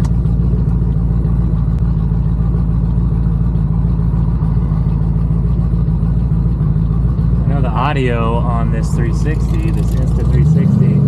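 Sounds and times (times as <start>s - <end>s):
car engine cruising drone: 0.0s - 11.0s.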